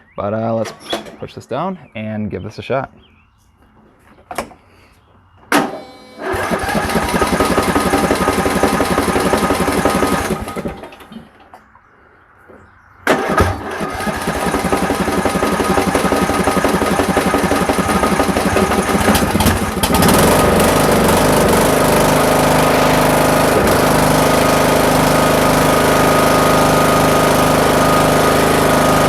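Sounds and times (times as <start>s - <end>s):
lawn mower engine running: 5.5s - 11.7s, 13.0s - 29.0s.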